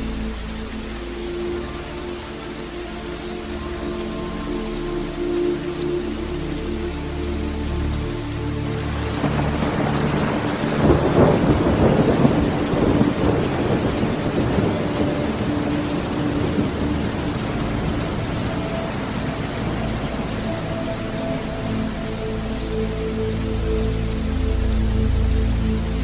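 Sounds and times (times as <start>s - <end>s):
steady rain: 0.0s - 26.0s
thunder rumbling: 9.1s - 21.5s.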